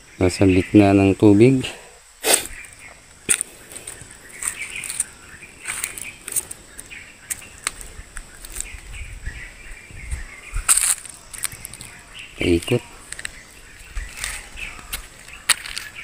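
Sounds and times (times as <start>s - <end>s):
birds chirping: 0.0s - 16.0s
sharp crackles and clicks: 10.7s - 13.4s.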